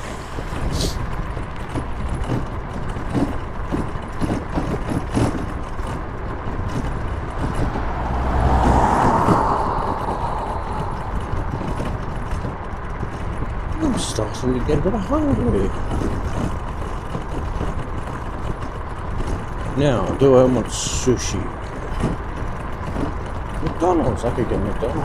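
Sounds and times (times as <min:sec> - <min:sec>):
road traffic: 0:00.0 - 0:18.3, 0:18.9 - 0:25.0
passing vehicle: 0:00.0 - 0:25.0
wind noise: 0:03.8 - 0:17.6.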